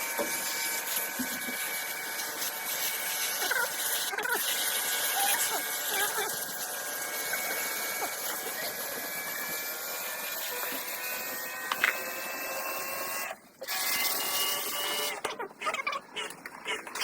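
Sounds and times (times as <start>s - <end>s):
washing machine whirring: 0.0s - 17.0s.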